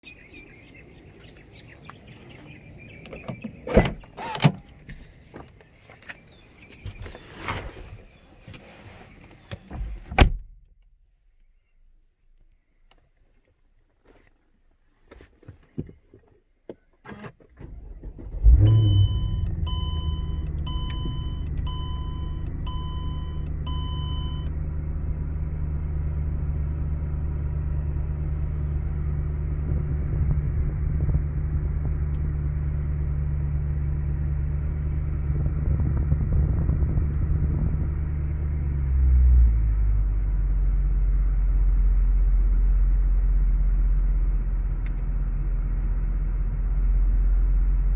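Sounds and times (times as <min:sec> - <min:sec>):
car engine starting and idling: 0:17.0 - 0:47.9
electronic chime beeping: 0:18.7 - 0:24.5.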